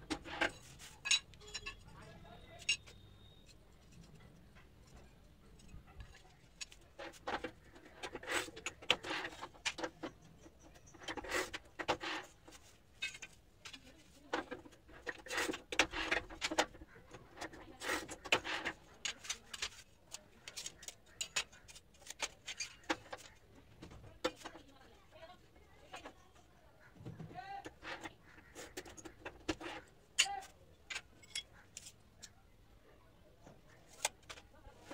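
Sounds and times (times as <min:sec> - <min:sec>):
ceramic tiles clinking on concrete: 0:00.1 - 0:14.1, 0:29.2 - 0:32.0.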